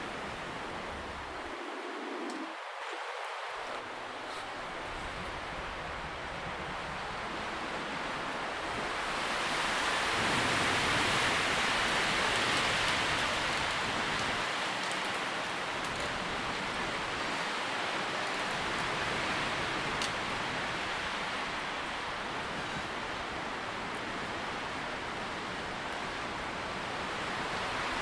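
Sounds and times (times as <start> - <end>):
wind rustling tree leaves: 0.0 - 28.0
faint leaf ticks: 11.8 - 16.8.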